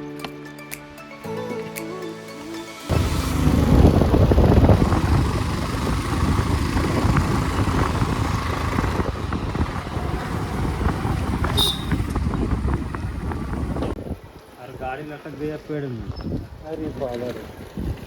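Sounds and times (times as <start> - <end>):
vehicle engine rumble: 2.9 - 14.0
wind buffeting microphone: 2.9 - 15.0, 16.0 - 18.0.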